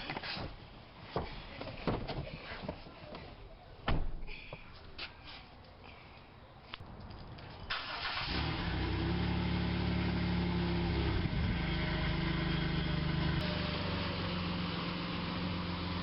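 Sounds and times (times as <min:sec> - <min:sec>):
car engine starting and running: 0:07.7 - 0:16.0.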